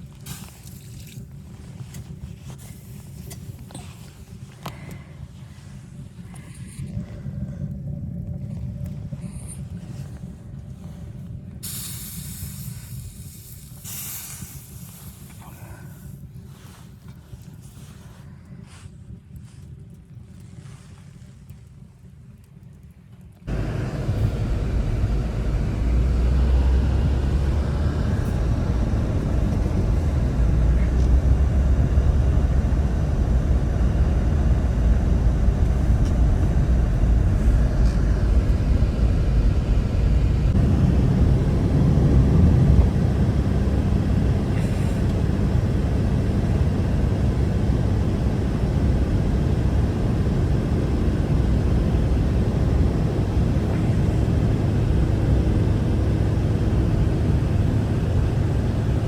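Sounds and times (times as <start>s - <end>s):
strong blizzard wind: 23.5s - 59.0s.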